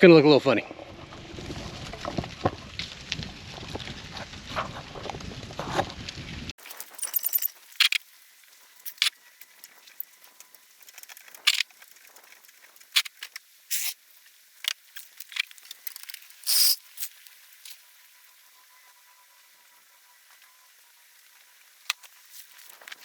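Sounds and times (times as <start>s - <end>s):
small objects clicking and tapping: 6.6s - 8.0s.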